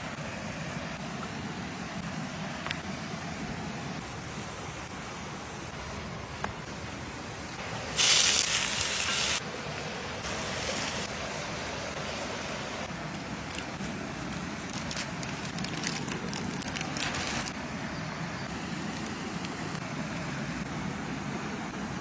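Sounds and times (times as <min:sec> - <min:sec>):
steady background noise: 0:00.0 - 0:22.0
loud hiss: 0:07.6 - 0:09.6.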